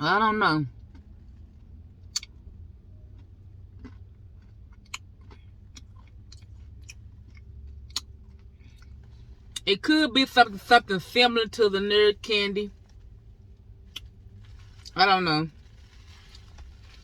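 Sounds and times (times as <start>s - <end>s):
steady low hum: 0.0s - 17.0s
person chewing: 0.7s - 9.6s.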